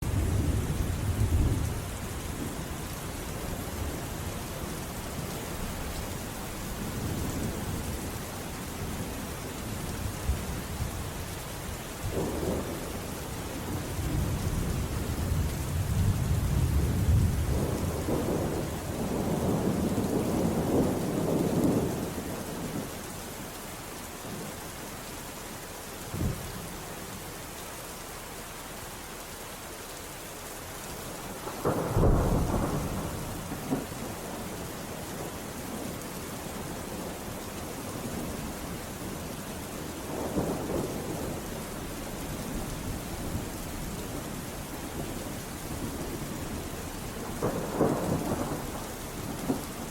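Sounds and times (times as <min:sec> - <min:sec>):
thunder rumbling and cracking: 0:00.0 - 0:04.2, 0:12.0 - 0:22.9, 0:31.4 - 0:34.6, 0:39.9 - 0:44.4, 0:45.7 - 0:49.9
steady rain hissing: 0:00.0 - 0:49.9.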